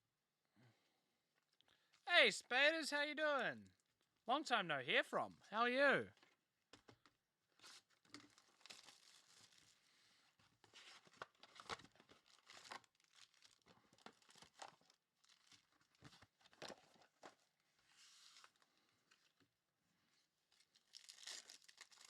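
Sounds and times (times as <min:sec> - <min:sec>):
wrappers tearing and crinkling: 0:07.6 - 0:09.8, 0:10.9 - 0:15.7, 0:20.6 - 0:22.0.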